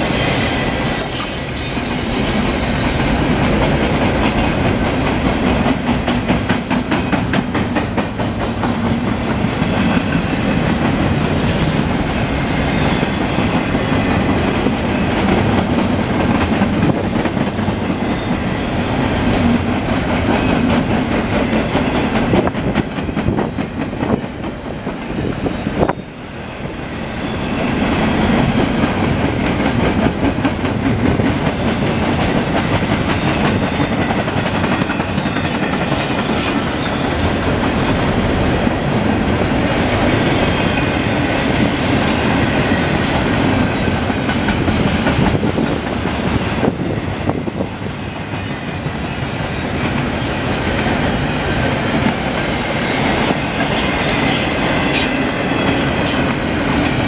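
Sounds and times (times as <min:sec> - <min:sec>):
freight train rumble: 0:00.0 - 0:57.0
steel wheels clicking on rails: 0:27.8 - 0:57.0.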